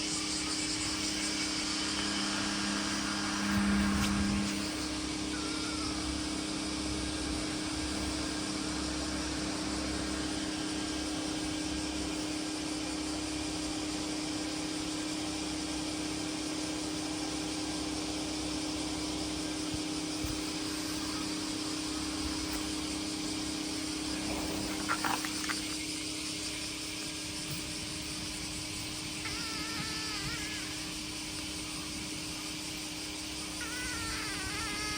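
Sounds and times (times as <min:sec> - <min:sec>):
low hum: 0:00.0 - 0:13.8
steady outdoor hiss: 0:00.0 - 0:34.9.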